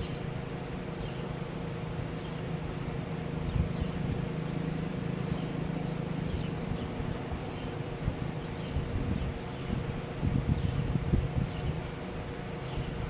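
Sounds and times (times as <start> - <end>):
low mechanical hum: 0.0 - 13.0
wind buffeting microphone: 3.2 - 4.6, 5.3 - 13.0.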